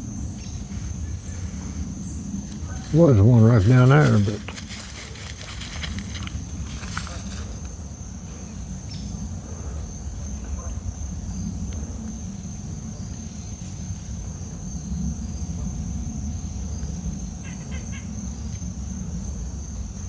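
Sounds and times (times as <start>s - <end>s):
short insect chirps: 0.0s - 14.2s
low microphone rumble: 0.0s - 17.4s
insects droning: 0.0s - 20.0s.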